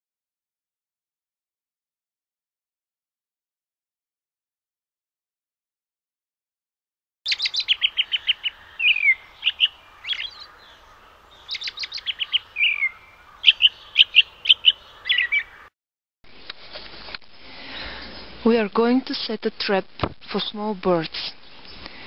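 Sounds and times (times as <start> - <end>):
small songbird chirping: 7.3 - 15.7.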